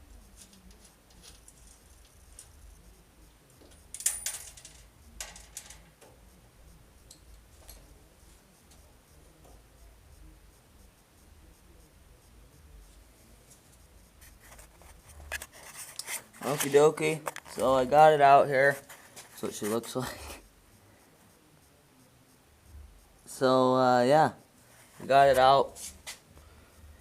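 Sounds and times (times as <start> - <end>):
small metal parts clicking: 3.6 - 6.1.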